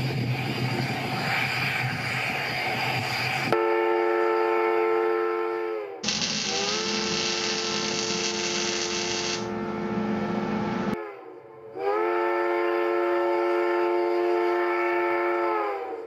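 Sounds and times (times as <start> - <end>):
loud steam hiss: 0.0 - 3.6, 6.0 - 9.4
train whistle chord: 3.5 - 16.0.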